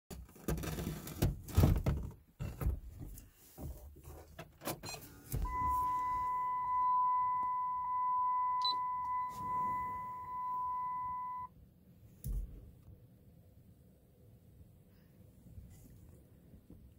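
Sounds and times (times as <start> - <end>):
clunks and knocks: 0.1 - 5.6
electronic warning tone: 5.4 - 11.5.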